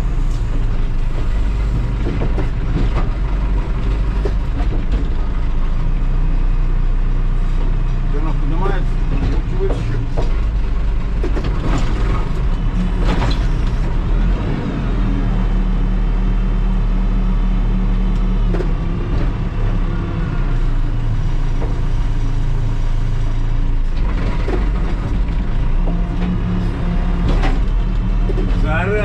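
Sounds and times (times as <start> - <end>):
backhoe diesel engine running: 0.0 - 29.0
machine knocks and clanks: 1.2 - 5.4, 9.0 - 14.1, 27.2 - 28.7.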